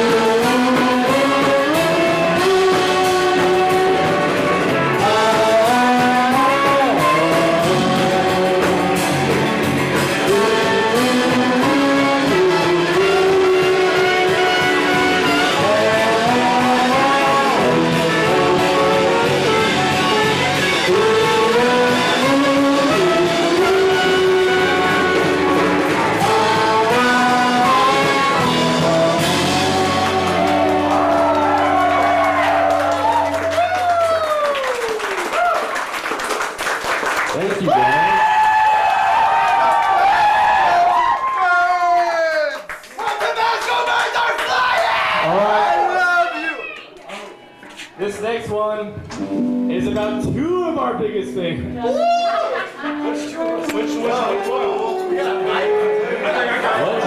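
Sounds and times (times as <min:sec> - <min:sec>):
melodic lead line of held notes: 0:00.0 - 0:34.3, 0:49.2 - 0:56.3
live band playing: 0:00.0 - 0:35.4, 0:46.4 - 0:57.0.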